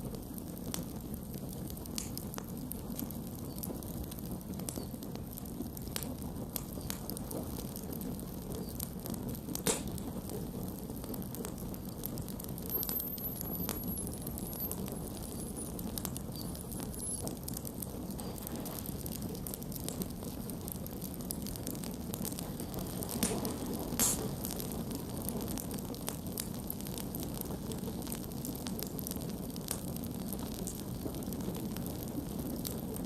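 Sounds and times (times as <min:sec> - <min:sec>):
campfire crackling and popping: 0:00.0 - 0:33.0.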